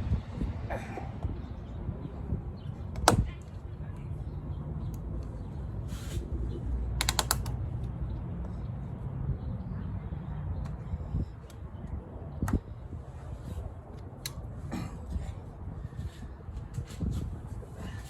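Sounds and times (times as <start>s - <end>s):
metallic clicks: 7.0s - 7.6s
ratchet clicks: 7.0s - 7.6s.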